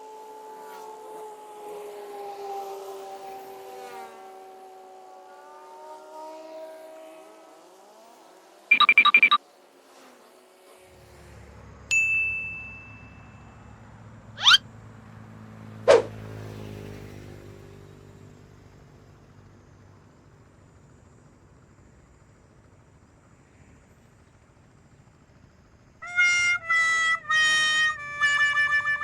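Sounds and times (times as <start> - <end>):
held beep: 8.7 - 9.4, 14.4 - 14.6
rapid chiming burst: 8.7 - 9.4
whoosh effects: 15.9 - 16.1.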